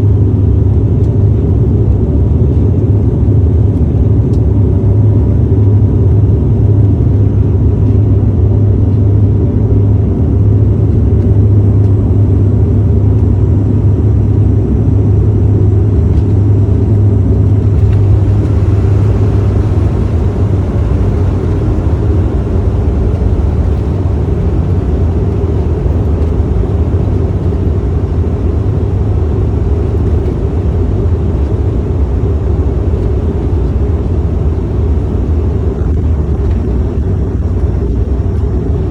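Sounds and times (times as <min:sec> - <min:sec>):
aircraft rumble: 0:00.0 - 0:38.9
hissing rush of wind: 0:17.6 - 0:28.3.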